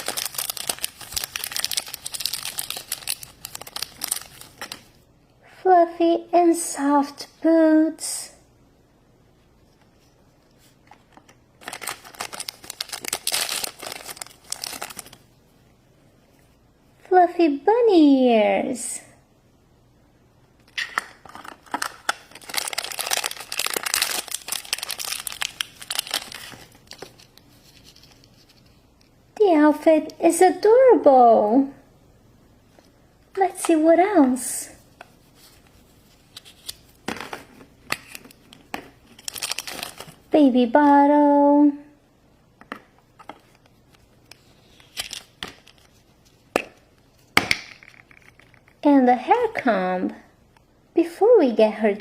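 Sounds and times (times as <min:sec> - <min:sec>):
plastic wrapper crinkling and tearing: 0:00.0 - 0:05.0, 0:10.9 - 0:15.3, 0:20.7 - 0:29.1, 0:35.3 - 0:37.0, 0:37.9 - 0:40.3, 0:43.1 - 0:48.8.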